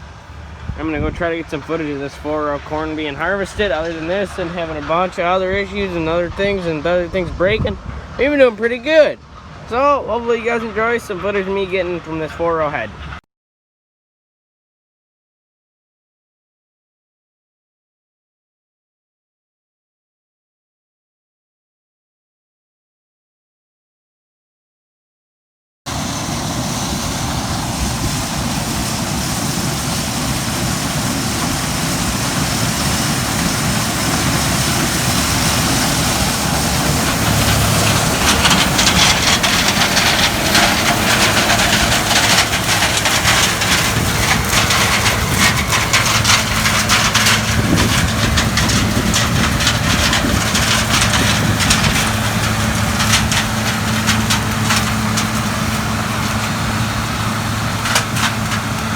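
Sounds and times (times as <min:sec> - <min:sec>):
crackling rattle of threshing: 0:00.0 - 0:12.2, 0:25.9 - 0:58.9
combine harvester engine drone: 0:00.0 - 0:13.2, 0:25.9 - 0:58.9.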